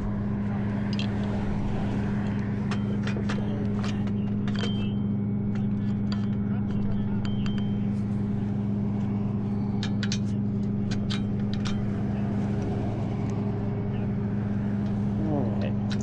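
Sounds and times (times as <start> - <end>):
truck engine idling: 0.0 - 16.0
sharp clicks and clinks: 2.2 - 7.9, 9.7 - 12.0.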